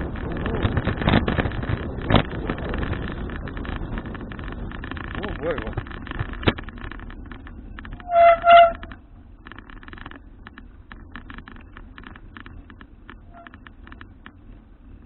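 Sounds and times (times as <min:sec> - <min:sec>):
horn tooting: 0:08.0 - 0:09.0.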